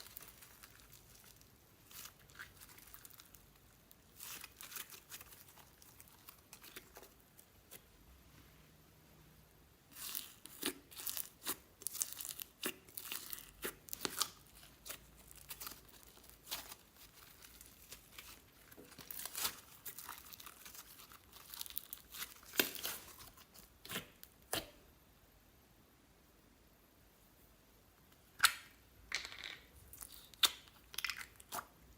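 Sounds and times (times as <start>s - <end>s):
slime squished by hand: 9.9s - 24.8s.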